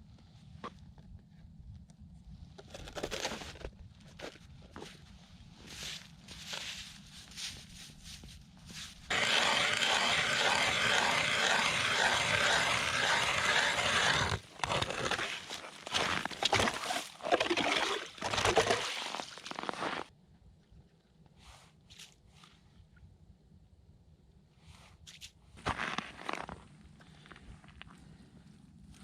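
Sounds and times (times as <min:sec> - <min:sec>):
ice scraping and crunching: 0:02.5 - 0:20.1, 0:25.6 - 0:27.9
hand-cranked ice auger grinding: 0:09.1 - 0:20.0.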